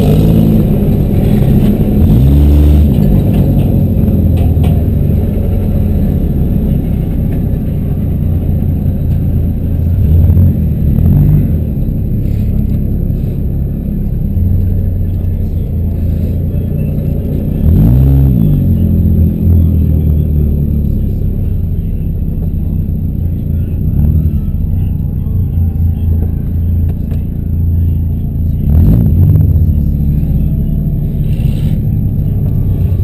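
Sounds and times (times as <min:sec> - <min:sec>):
car engine revving: 0:00.0 - 0:33.0
car engines rumbling loudly: 0:00.0 - 0:33.0.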